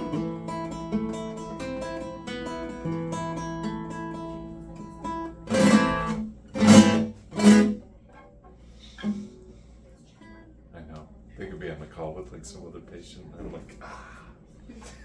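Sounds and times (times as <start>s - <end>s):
acoustic guitar strummed chords: 0.0s - 7.9s
acoustic guitar picked notes: 0.0s - 8.4s.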